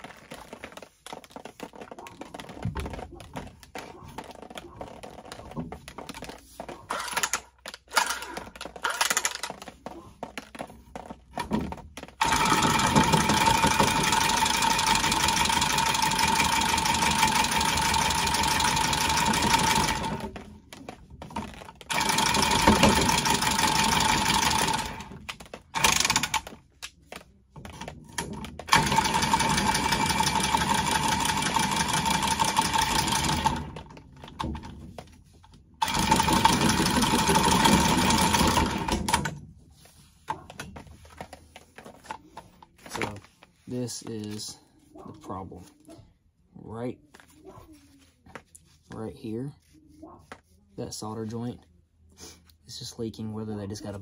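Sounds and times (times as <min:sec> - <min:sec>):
tool clicks and knocks: 0:05.3 - 0:14.0.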